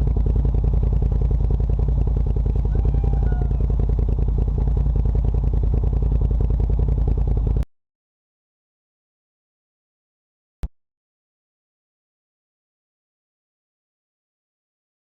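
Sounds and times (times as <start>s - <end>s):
vehicle rattling: 0.0s - 7.6s
off-road vehicle engine running: 0.0s - 7.7s.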